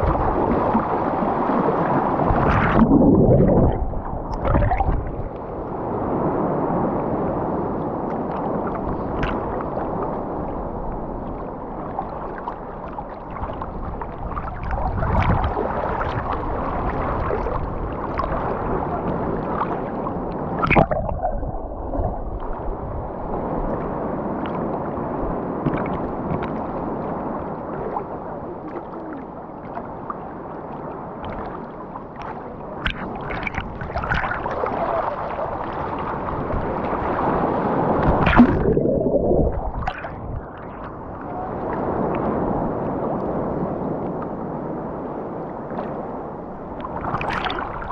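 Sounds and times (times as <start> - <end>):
sharp water splash: 0.0 - 5.3, 20.6 - 22.6, 36.1 - 40.9
sea water sloshing in surf: 0.0 - 47.9.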